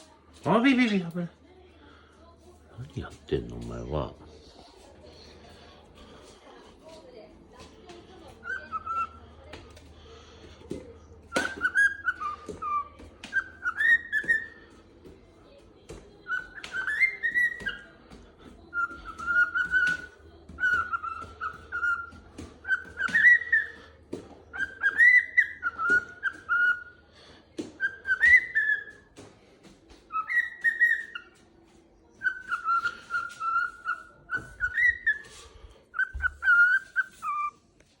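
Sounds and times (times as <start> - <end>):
cockatiel whistling a tune: 8.4 - 9.2, 11.3 - 14.6, 16.2 - 17.9, 18.7 - 23.8, 24.5 - 27.0, 27.7 - 29.1, 30.1 - 31.4, 32.2 - 37.6.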